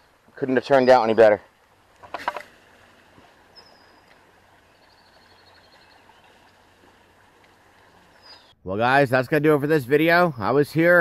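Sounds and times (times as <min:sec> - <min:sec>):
faint birdsong: 0:00.0 - 0:08.7
man speaking: 0:08.7 - 0:11.0.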